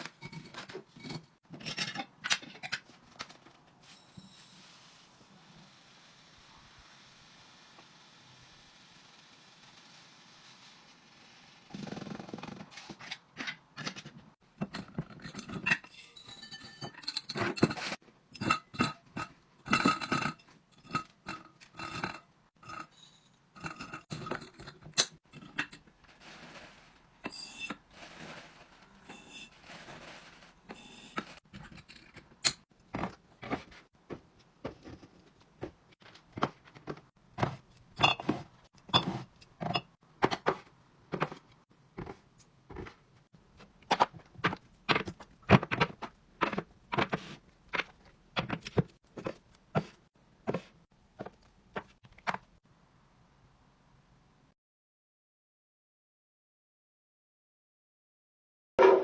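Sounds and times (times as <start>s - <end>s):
jars and containers clinking: 14.6s - 33.8s, 34.7s - 40.4s.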